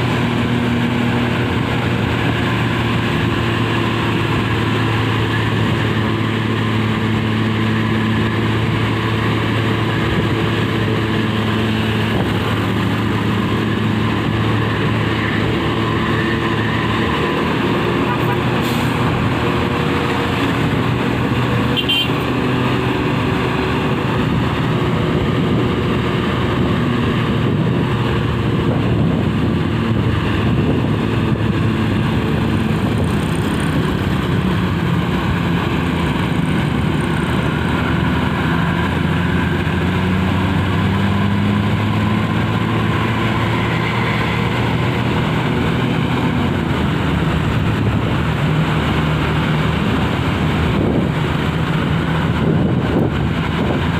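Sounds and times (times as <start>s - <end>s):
heavy vehicle engine running: 0.0s - 53.9s
road noise: 0.0s - 53.9s.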